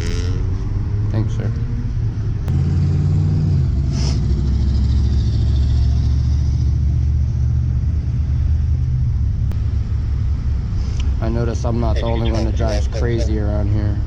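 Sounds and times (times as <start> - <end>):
vehicle engine running: 3.8 - 14.0.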